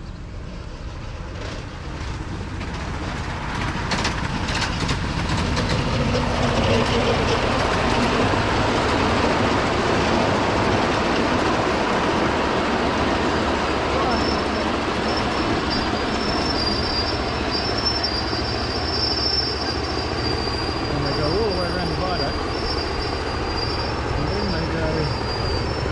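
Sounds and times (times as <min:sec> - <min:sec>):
miniature train wheels on rails: 0:01.4 - 0:18.4.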